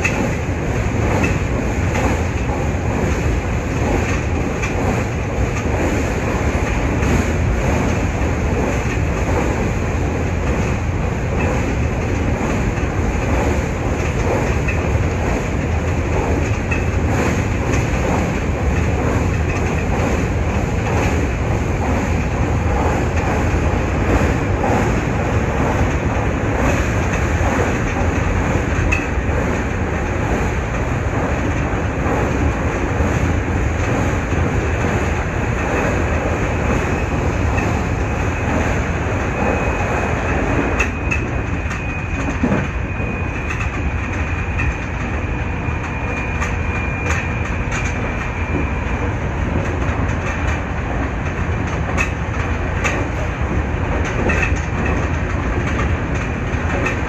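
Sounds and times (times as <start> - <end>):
clicks over rail joints: 0.0 - 9.7, 10.4 - 25.0, 45.8 - 57.0
train wheels rumbling on rail: 0.0 - 57.0.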